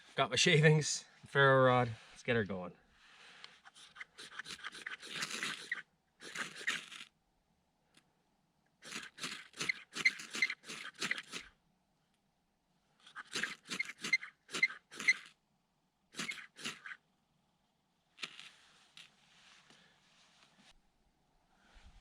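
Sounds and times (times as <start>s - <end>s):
knife scraping ferro rod: 3.6s - 7.1s, 8.8s - 11.4s, 13.1s - 15.3s, 16.2s - 17.0s.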